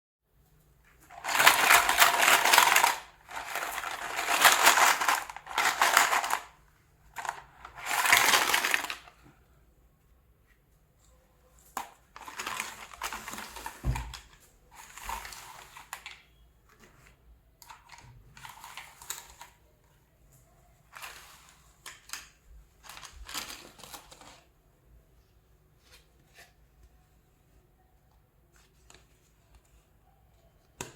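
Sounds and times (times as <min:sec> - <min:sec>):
plastic toy pieces handled: 0:01.0 - 0:09.2, 0:11.8 - 0:16.2, 0:20.9 - 0:24.5
packaging rustling: 0:01.1 - 0:06.6, 0:07.2 - 0:09.1, 0:12.2 - 0:14.2, 0:22.8 - 0:24.4.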